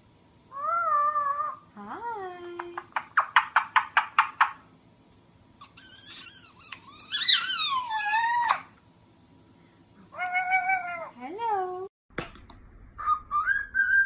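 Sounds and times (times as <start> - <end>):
parrot chirps: 2.8 - 4.7, 5.6 - 8.8, 13.0 - 14.0
parrot harsh squawk: 5.6 - 8.7.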